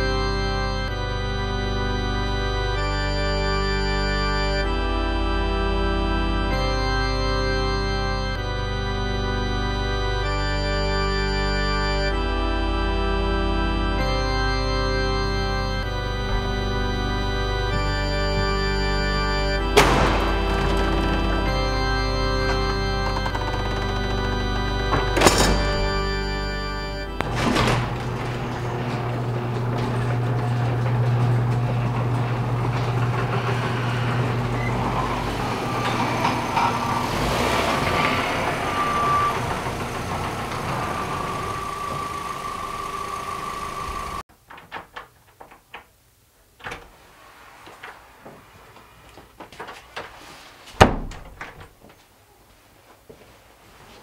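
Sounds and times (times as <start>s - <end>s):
steady high tone: 0.0s - 44.2s
car engine running: 14.2s - 44.2s
loud thump: 19.8s - 21.8s.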